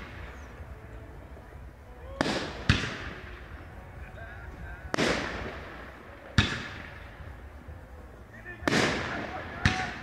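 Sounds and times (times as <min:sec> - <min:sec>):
fireworks bursting with echo: 0:00.0 - 0:00.8, 0:01.4 - 0:10.0.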